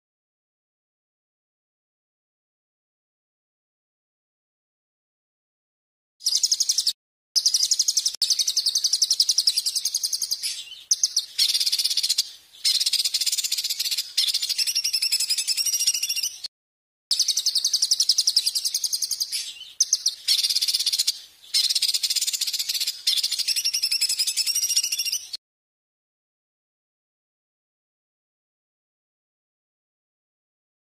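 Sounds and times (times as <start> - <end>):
songbird singing rapid trills: 6.2 - 16.5, 17.1 - 25.4.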